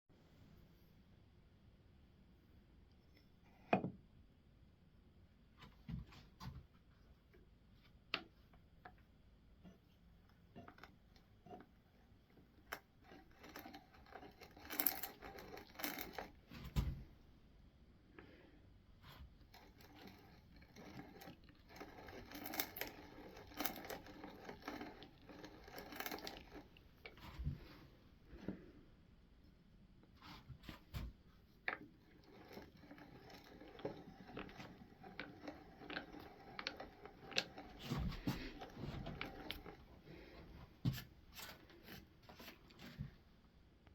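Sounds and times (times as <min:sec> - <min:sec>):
hand brace boring into wood: 0:10.5 - 0:16.4, 0:19.4 - 0:27.2, 0:31.7 - 0:40.3.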